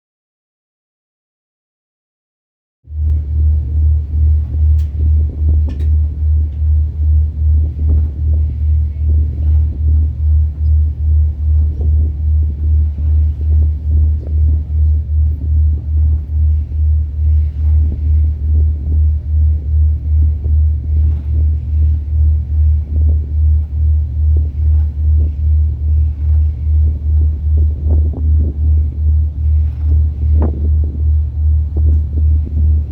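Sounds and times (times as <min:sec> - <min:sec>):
ferry engine rumbling: 0:02.9 - 0:32.9.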